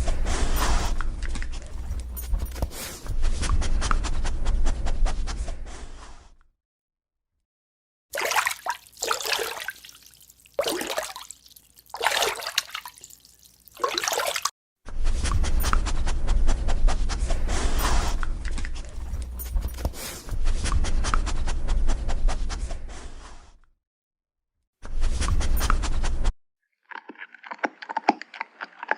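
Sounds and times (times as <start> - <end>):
dog lapping water: 8.2 - 14.5.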